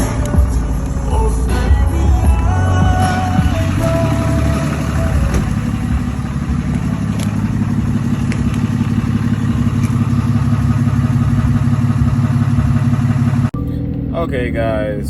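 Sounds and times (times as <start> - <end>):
music: 0.0 - 5.6, 13.6 - 15.0
truck engine idling: 0.0 - 14.7.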